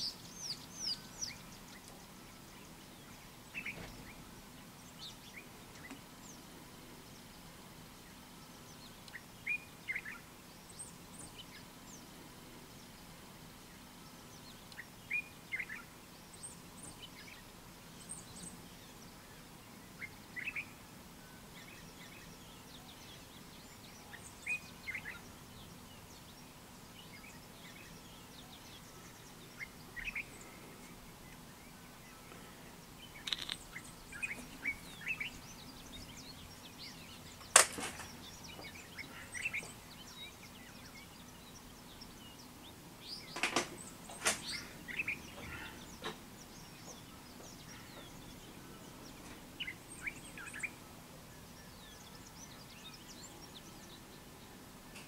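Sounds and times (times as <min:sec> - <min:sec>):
bird chirps and calls: 0:00.0 - 0:04.2, 0:21.4 - 0:55.0
faint steady background: 0:00.0 - 0:55.0
sharp clicks: 0:33.2 - 0:33.8.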